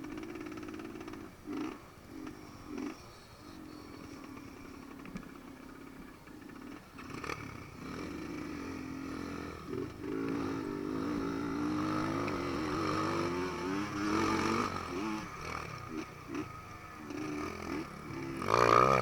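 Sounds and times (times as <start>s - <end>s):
dirt bike engine revving: 0.1s - 3.1s, 6.4s - 19.0s.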